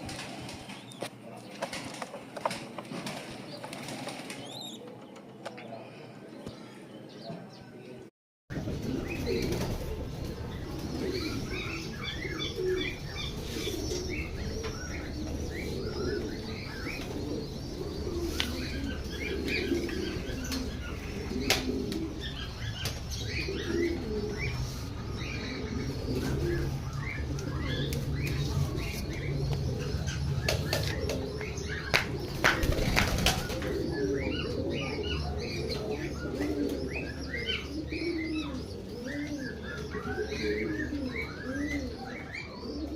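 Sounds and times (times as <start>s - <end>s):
wings flapping: 0.0s - 5.0s, 31.9s - 33.8s
pigeons cooing: 8.5s - 42.9s
sharp wing claps: 31.9s - 33.6s.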